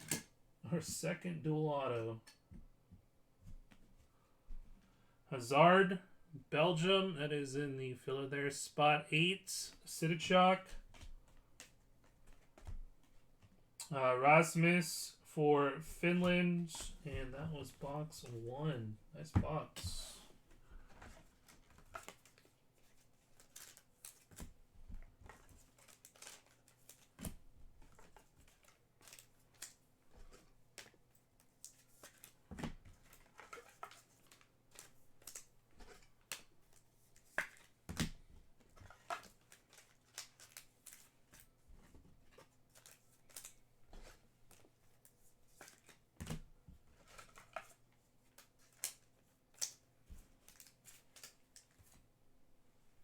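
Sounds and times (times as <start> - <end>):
packaging clicks and rustles: 20.8 - 52.0.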